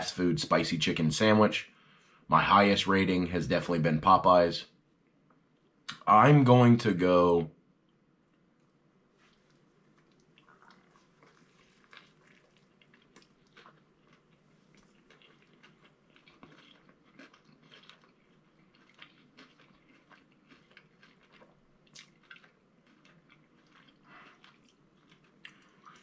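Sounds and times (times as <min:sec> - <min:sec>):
chewing mouth clicks and smacks: 0:08.3 - 0:26.0.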